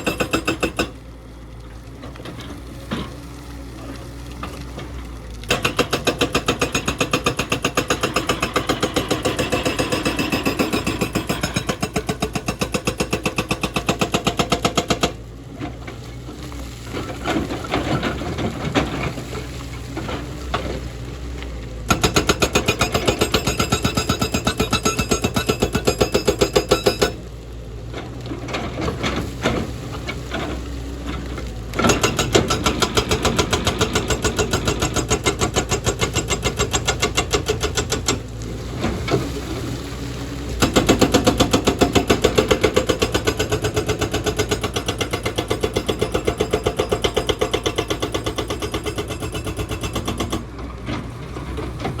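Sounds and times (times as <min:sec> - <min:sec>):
hydraulic breaker hammering: 0:00.0 - 0:00.9, 0:05.5 - 0:15.2, 0:21.9 - 0:27.2
diesel engine running: 0:50.4 - 0:52.0.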